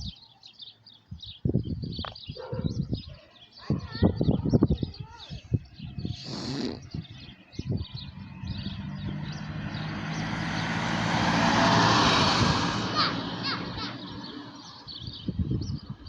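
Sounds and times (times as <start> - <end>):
vehicle driving past: 7.0 - 15.0.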